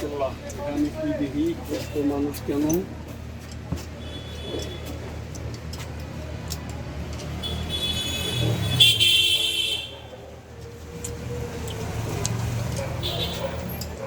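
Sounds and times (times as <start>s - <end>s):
road traffic rumbling: 0.0s - 14.0s
vehicle horn: 7.4s - 9.9s, 13.0s - 13.5s.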